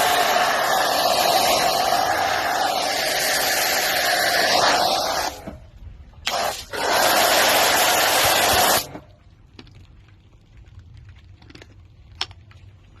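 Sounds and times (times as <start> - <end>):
high-pressure water spray hissing: 0.0 - 5.6, 6.2 - 9.0.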